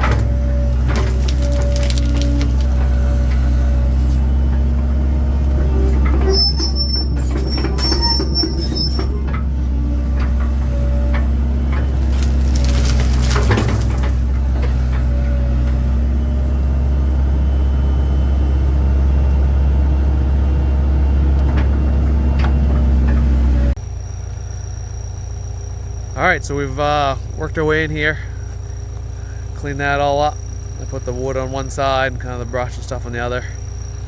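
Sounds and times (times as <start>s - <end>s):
wood and brush knocking and snapping: 0.0s - 3.4s, 11.2s - 15.0s
excavator diesel engine running: 0.0s - 34.0s
short high squeals: 5.6s - 10.1s.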